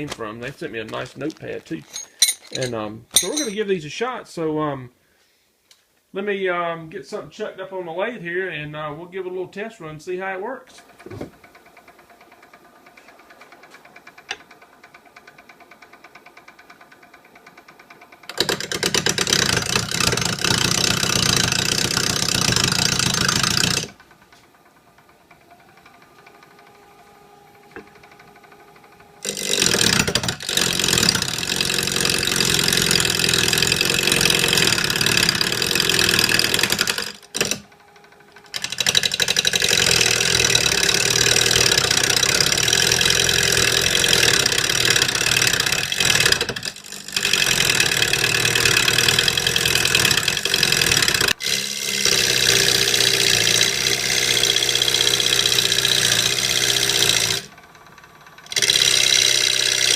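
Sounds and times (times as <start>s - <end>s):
lathe motor hum: 10.8s - 59.9s
tool hissing cutting wood: 29.2s - 37.6s.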